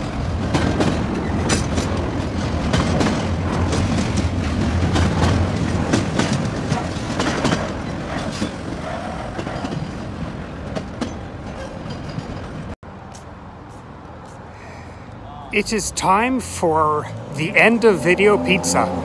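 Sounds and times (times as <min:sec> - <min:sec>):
wheels clacking over rail joints: 0:00.0 - 0:12.8
train cars rolling on rails: 0:00.0 - 0:14.4, 0:15.2 - 0:19.0.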